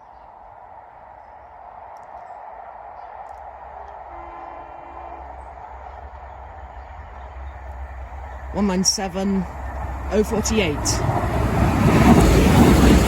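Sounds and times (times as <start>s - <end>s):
diesel train rumble: 0.0s - 13.0s
train horn note: 4.0s - 5.6s.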